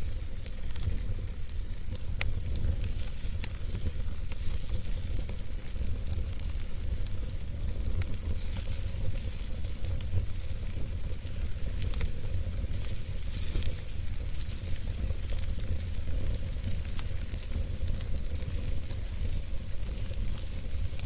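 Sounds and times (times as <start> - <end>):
fire crackles and pops: 0.0 - 21.0
wood fire hissing and rumbling: 0.0 - 21.0.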